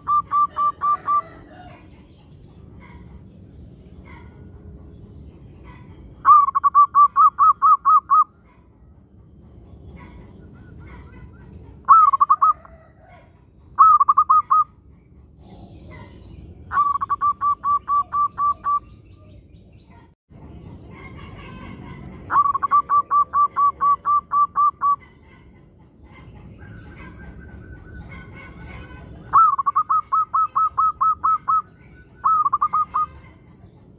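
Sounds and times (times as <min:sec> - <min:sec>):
dove cooing: 0:00.0 - 0:02.0, 0:05.7 - 0:08.3, 0:10.0 - 0:14.7, 0:16.7 - 0:18.8, 0:21.3 - 0:25.6, 0:26.6 - 0:33.2.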